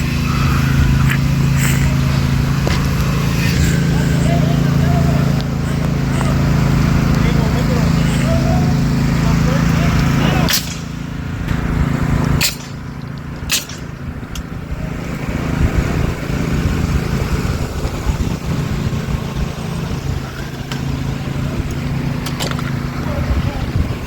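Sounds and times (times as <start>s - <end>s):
car engine humming: 0.0s - 24.0s
sharp clicks: 10.0s - 11.0s, 12.4s - 14.5s.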